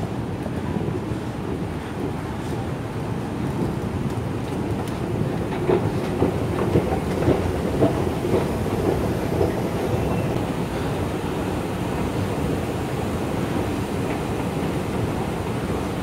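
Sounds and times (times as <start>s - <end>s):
train rumble inside carriage: 0.0s - 16.0s
wheels clacking: 3.6s - 10.4s.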